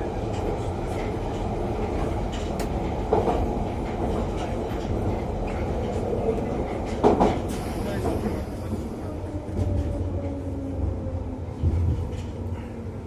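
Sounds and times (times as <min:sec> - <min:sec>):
train wheels on track: 0:00.0 - 0:13.0.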